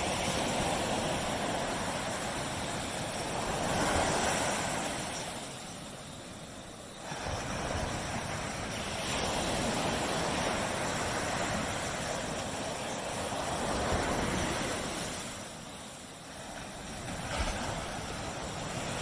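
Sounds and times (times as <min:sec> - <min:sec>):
ocean surf washing onto beach: 0:00.0 - 0:19.0.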